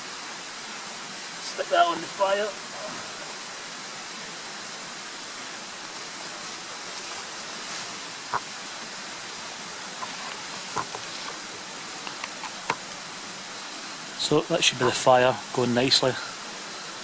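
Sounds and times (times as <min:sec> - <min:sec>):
campfire crackling: 0:05.7 - 0:15.6.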